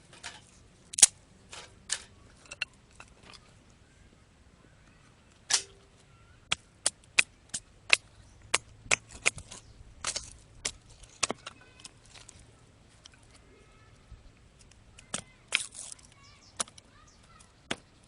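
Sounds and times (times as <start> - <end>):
firewood splitting and cracking: 0.0 - 3.4, 6.5 - 12.4, 14.6 - 17.9.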